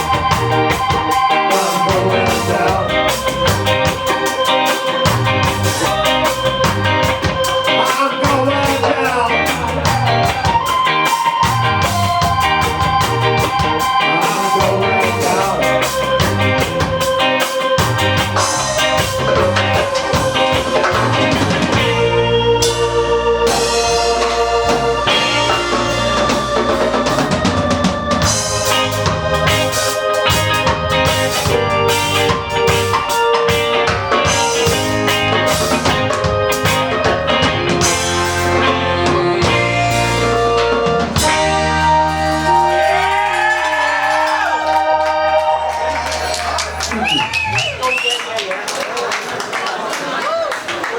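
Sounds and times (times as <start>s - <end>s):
ska band playing live: 0.0s - 50.9s
organ holding a long note: 9.4s - 47.0s.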